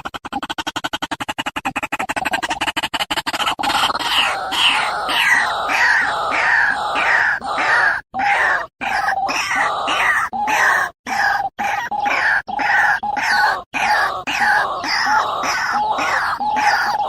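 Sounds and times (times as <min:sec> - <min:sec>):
waterhen croaking call: 0:03.6 - 0:17.0.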